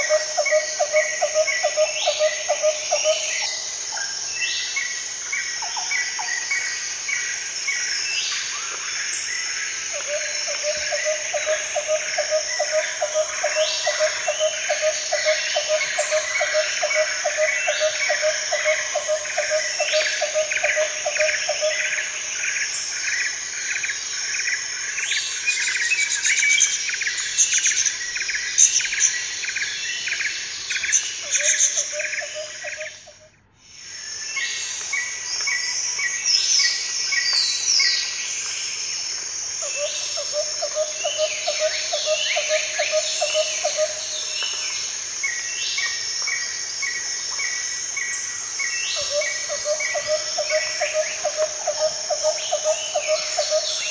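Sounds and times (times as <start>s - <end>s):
insects trilling: 0.0s - 53.9s
birds chirping and calling: 47.9s - 53.9s.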